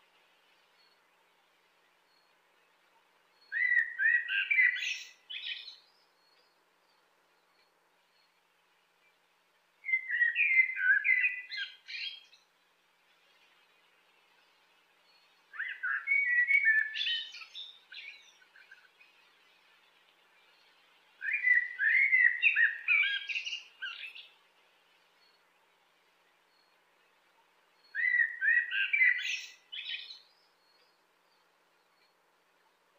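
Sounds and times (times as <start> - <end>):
blackbird singing: 3.3 - 8.4, 9.8 - 12.5, 14.5 - 24.4, 27.8 - 32.2.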